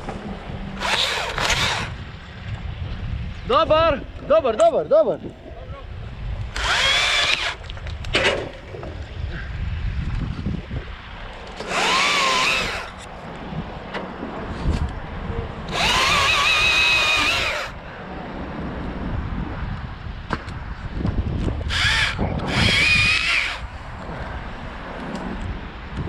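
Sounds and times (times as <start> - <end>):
wind rumble on microphone: 0.0 - 26.0
chainsaw motor whine: 0.8 - 2.0, 6.5 - 7.7, 11.6 - 13.1, 15.7 - 17.8, 21.7 - 23.7.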